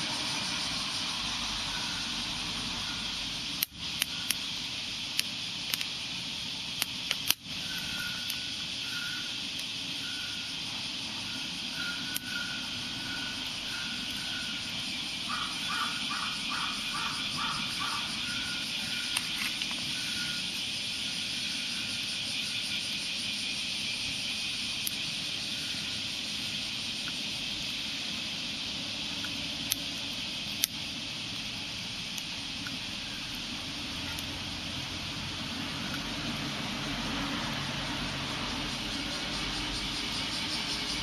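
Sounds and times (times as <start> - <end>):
outdoor hiss: 0.0 - 41.0
sharp clicks: 3.5 - 6.0, 6.7 - 8.4, 9.5 - 9.8, 12.1 - 12.4, 29.2 - 31.5
bird calling: 7.6 - 22.8.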